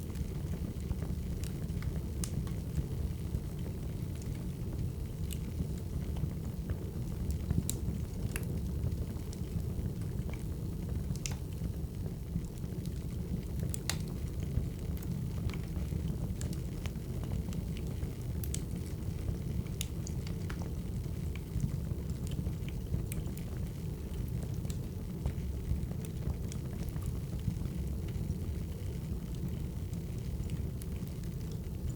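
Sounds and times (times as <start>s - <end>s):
low rumble of burning logs: 0.0s - 31.9s
fire pops and snaps: 5.2s - 6.7s, 7.3s - 11.7s, 12.4s - 31.9s.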